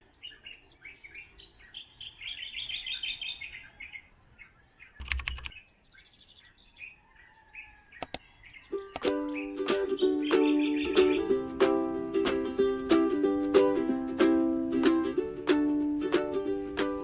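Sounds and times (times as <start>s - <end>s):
birds chirping and calling: 0.0s - 17.0s
quick clicks: 5.0s - 5.6s, 8.0s - 11.2s.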